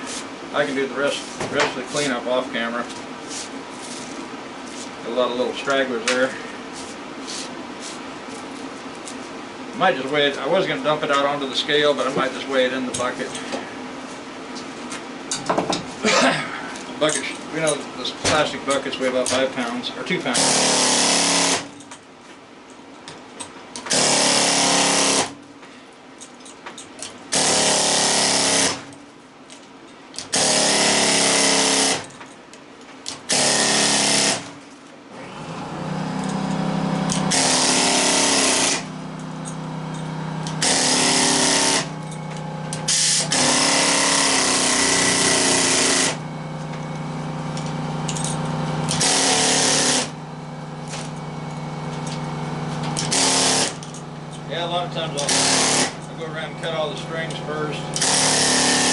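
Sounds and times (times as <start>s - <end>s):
power tool running in short bursts: 20.4s - 21.7s, 23.9s - 25.4s, 27.3s - 28.9s, 30.3s - 32.0s, 33.3s - 34.5s, 35.2s - 46.3s, 47.9s - 50.2s, 52.2s - 53.9s, 55.2s - 56.0s, 57.9s - 58.9s
steady low hum: 27.1s - 58.6s.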